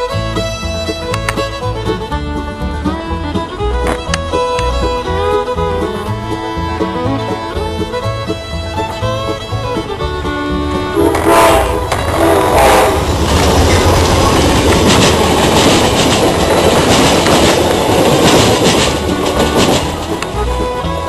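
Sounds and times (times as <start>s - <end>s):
train cars rumbling: 0.0s - 21.0s
wheels clacking over rail joints: 0.0s - 21.0s
train air horn: 10.9s - 13.2s.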